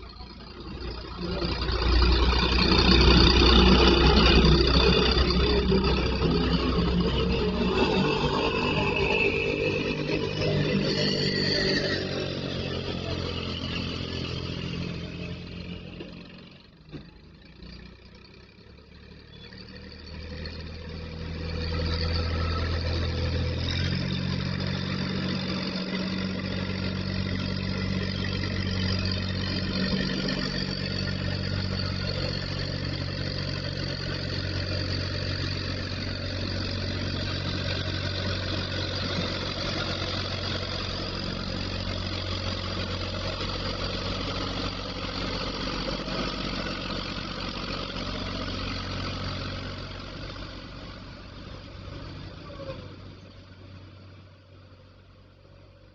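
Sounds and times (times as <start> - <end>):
truck engine running: 0.0 - 55.9.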